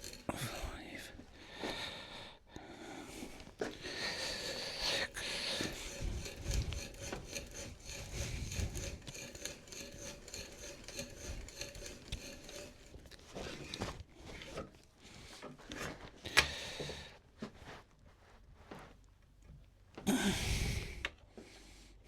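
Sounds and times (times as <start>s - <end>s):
hand tool scraping wood: 0.0s - 1.9s, 3.6s - 17.6s.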